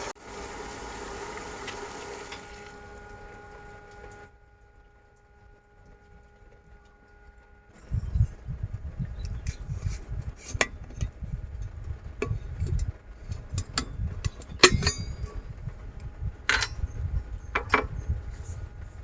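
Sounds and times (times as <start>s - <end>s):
uneven low rumble: 3.8s - 19.0s.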